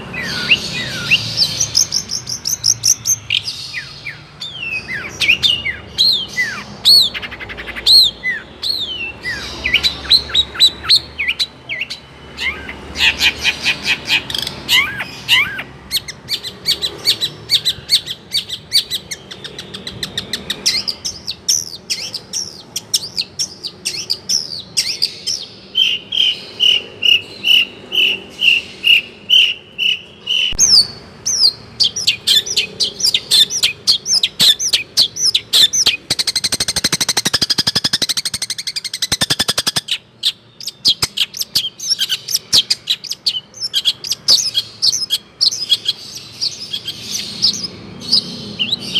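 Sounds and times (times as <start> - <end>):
harsh rapid bird chatter: 0.0 - 48.9
shrike singing mimicked calls: 0.0 - 48.9.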